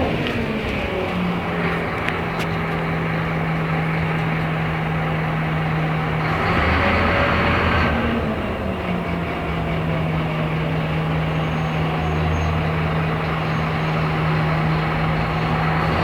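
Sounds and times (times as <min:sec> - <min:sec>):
bus diesel engine running: 0:00.0 - 0:16.0.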